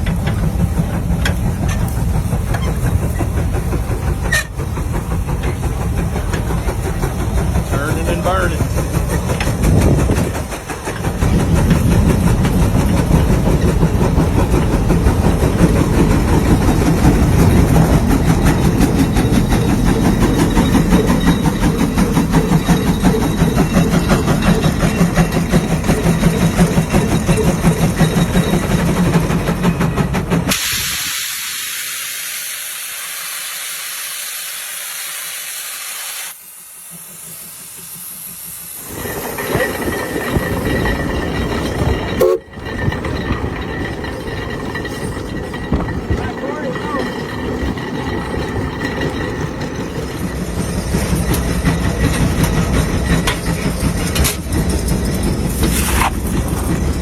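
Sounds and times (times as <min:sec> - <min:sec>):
steam engine exhaust beat: 0:00.0 - 0:57.0
escaping steam hiss: 0:00.5 - 0:40.7.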